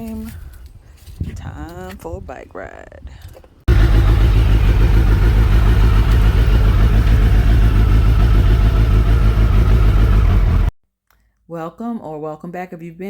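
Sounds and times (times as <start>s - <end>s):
motorcycle engine running steadily: 3.7s - 10.7s.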